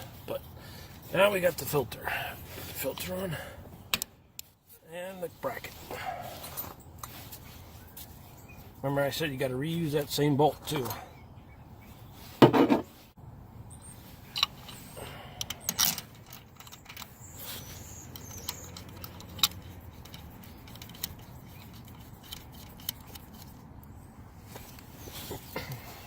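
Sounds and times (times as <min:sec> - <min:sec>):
metal parts clattering: 0:15.6 - 0:17.5
metallic clicks of hand tools: 0:18.0 - 0:23.4.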